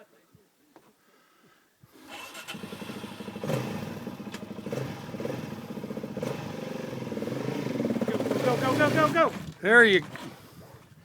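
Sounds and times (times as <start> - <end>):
dirt bike engine revving: 2.0 - 9.5.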